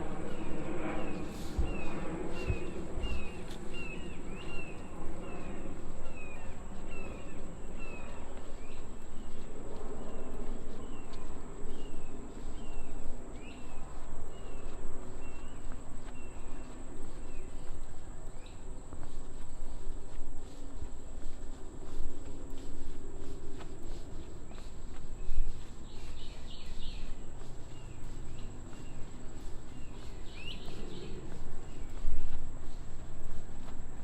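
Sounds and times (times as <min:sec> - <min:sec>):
high-pitched insect whine: 0:00.0 - 0:09.5, 0:22.6 - 0:34.0.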